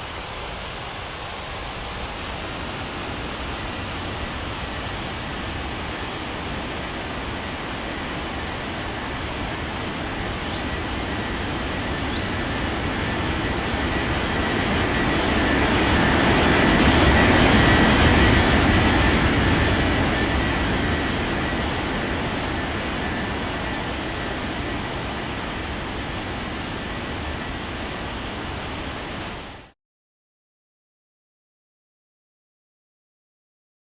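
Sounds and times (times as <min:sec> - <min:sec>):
faint high engine whine: 0:00.0 - 0:29.8
jet engines passing: 0:00.0 - 0:29.8.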